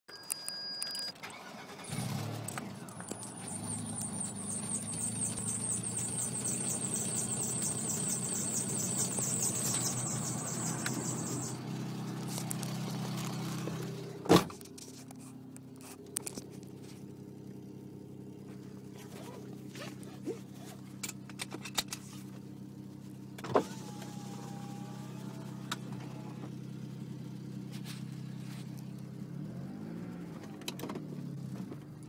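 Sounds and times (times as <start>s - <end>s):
car engine starting and idling: 0.9s - 32.0s
rapid high chirping: 3.4s - 11.6s.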